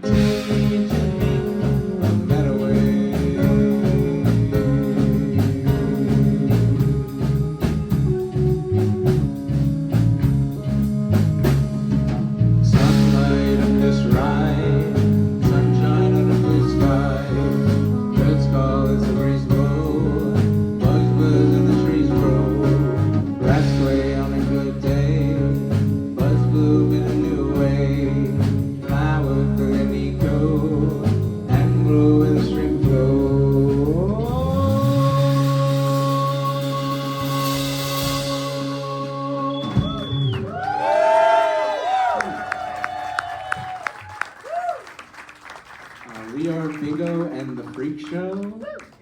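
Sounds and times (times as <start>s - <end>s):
person singing: 0.0s - 8.5s, 12.6s - 40.0s
drum beat: 0.0s - 10.6s
guitar: 0.0s - 44.0s
live band playing: 0.0s - 49.0s.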